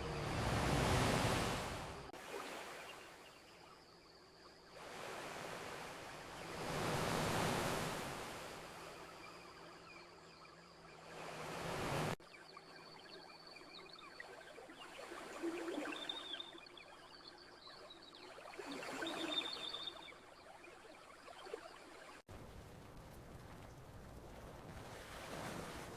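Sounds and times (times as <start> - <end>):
ocean waves washing onto beach: 0.0 - 3.5, 4.8 - 9.2, 11.0 - 12.2, 22.3 - 25.9.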